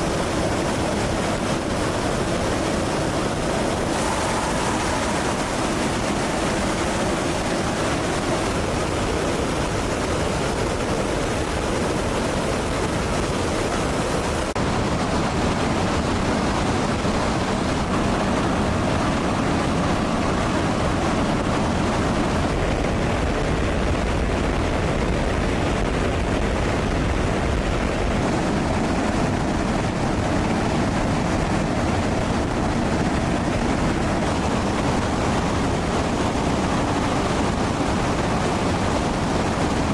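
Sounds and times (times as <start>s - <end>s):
jet aircraft airflow rushing: 0.0s - 14.6s.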